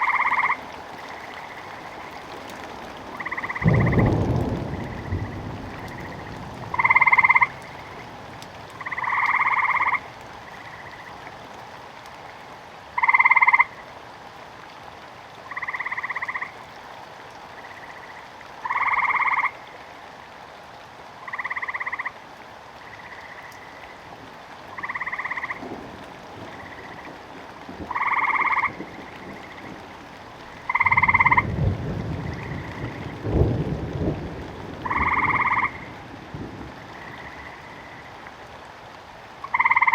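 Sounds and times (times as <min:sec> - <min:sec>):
frogs croaking: 0:00.0 - 0:11.4, 0:12.1 - 0:13.9, 0:15.4 - 0:16.8, 0:17.4 - 0:20.0, 0:21.2 - 0:38.4, 0:39.4 - 0:39.9
rain patter: 0:00.0 - 0:39.9
thunder rumbling: 0:03.1 - 0:09.1, 0:25.5 - 0:37.9.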